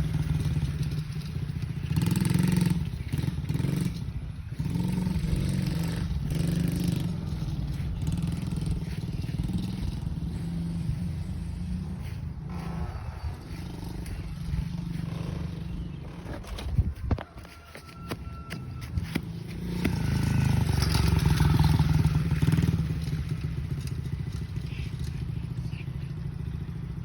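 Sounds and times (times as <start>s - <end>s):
dirt bike engine running: 0.0s - 27.0s.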